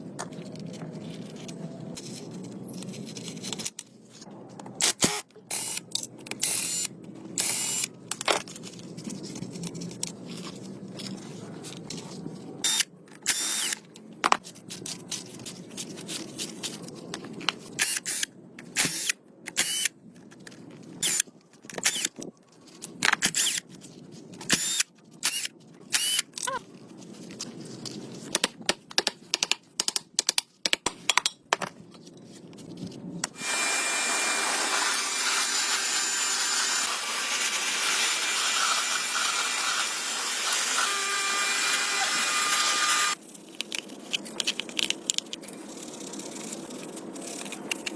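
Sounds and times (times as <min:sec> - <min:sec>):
sharp irregular clicks and knocks: 0:28.3 - 0:31.7
power tool running: 0:33.4 - 0:43.2.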